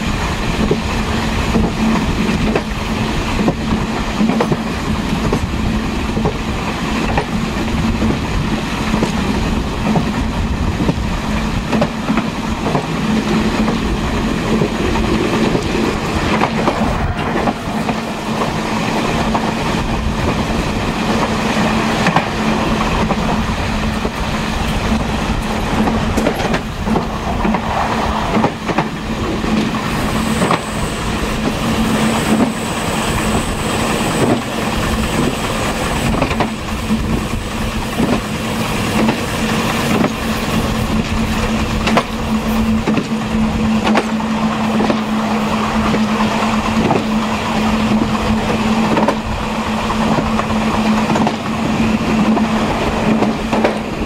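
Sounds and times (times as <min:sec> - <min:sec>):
clickety-clack of rail joints: 0:00.0 - 0:54.0
train wheels rumbling on track: 0:00.0 - 0:54.0.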